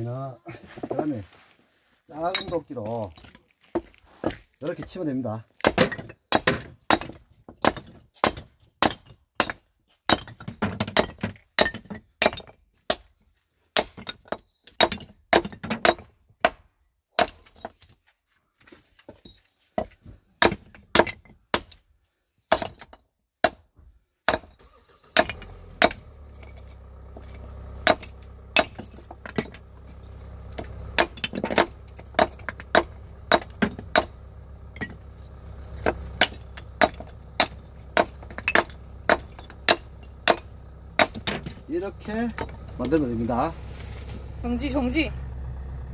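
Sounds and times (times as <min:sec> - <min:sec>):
hatchet chopping wood: 0:05.6 - 0:17.8, 0:19.8 - 0:21.8, 0:22.5 - 0:26.6, 0:27.2 - 0:29.6, 0:30.5 - 0:35.0, 0:35.7 - 0:43.0.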